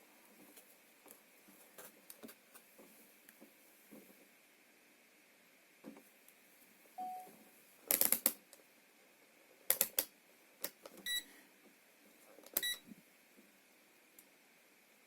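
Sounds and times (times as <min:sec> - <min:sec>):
high electronic beeps: 0:07.0 - 0:07.3
low electronic tone: 0:07.0 - 0:07.3.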